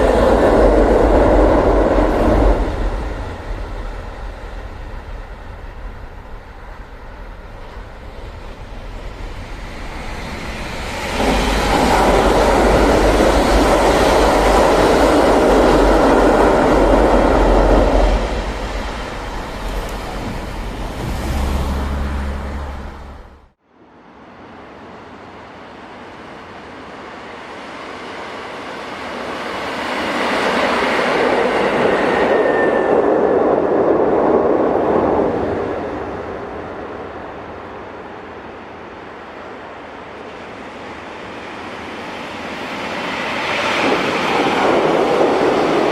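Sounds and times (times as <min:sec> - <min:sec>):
train wheels rumbling: 0:00.0 - 0:23.5.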